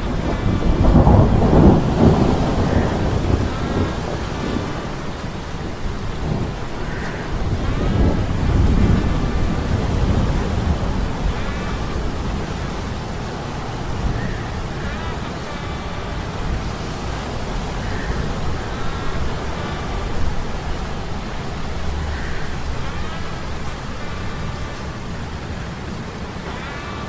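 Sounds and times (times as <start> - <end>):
wind: 0.0 - 27.0.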